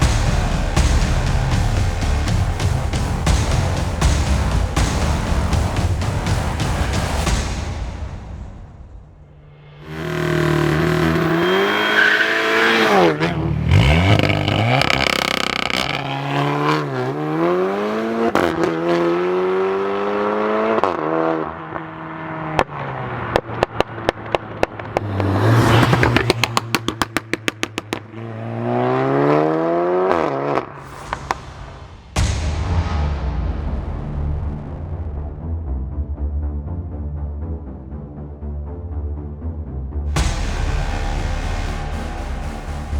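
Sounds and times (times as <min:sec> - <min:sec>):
car engine revving: 0:00.0 - 0:32.2, 0:40.1 - 0:42.9
exhaust pops and crackles: 0:13.8 - 0:16.8, 0:23.4 - 0:28.1.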